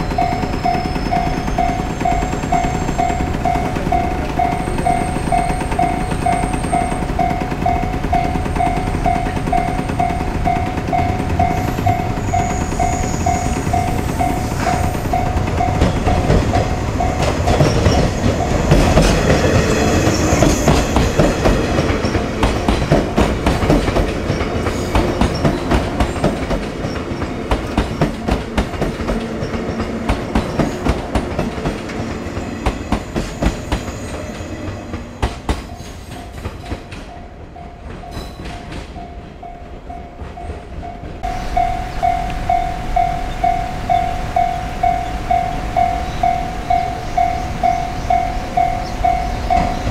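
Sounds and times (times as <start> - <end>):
pulsing warning bell: 0.0 - 23.2, 37.1 - 49.9
train wheels clicking over rail joints: 0.0 - 49.9.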